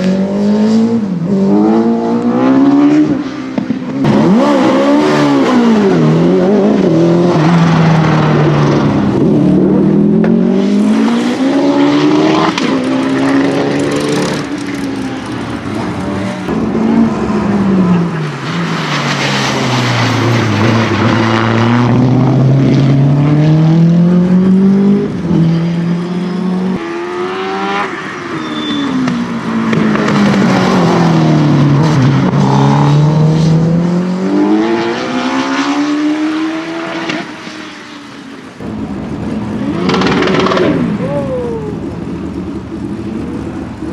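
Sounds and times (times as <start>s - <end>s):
racing car engine revving: 4.0s - 18.8s.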